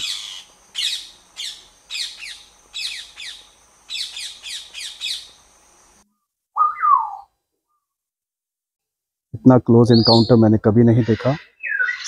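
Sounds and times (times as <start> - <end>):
birds chirping: 0.0 - 7.9, 9.7 - 12.0
short lower bird call: 6.1 - 8.0.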